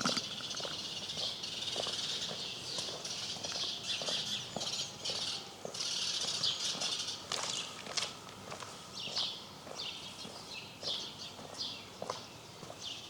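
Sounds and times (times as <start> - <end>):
small birds chirping: 0.0 - 7.8, 8.9 - 13.0
footsteps on cobblestones: 0.1 - 12.9.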